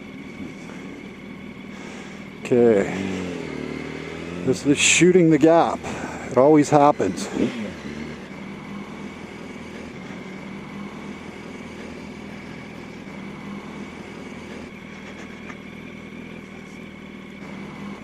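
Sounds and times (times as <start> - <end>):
motorcycle engine running low: 0.0 - 18.0.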